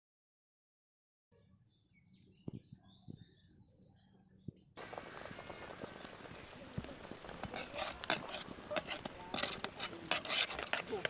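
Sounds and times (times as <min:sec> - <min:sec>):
birds chirping: 0:01.8 - 0:11.0
steady hiss with crackling clicks: 0:04.8 - 0:09.8.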